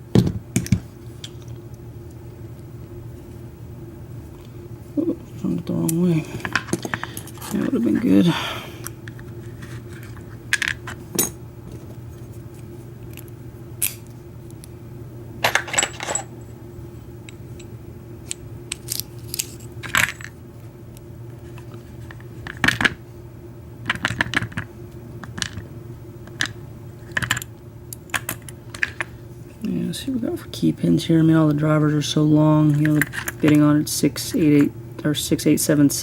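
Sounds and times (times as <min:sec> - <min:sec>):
small parts dropping on hard surface: 0:15.4 - 0:16.3.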